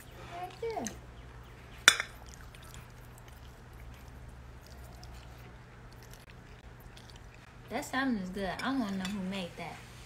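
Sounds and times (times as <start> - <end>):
steady low hum: 0.0 - 10.0
dishware clink: 1.9 - 2.2.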